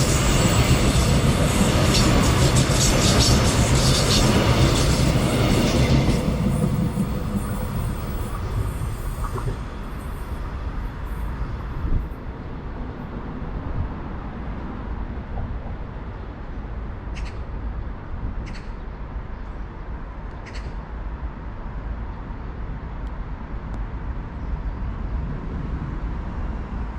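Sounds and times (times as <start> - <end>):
passing train rail noise: 0.0 - 26.9.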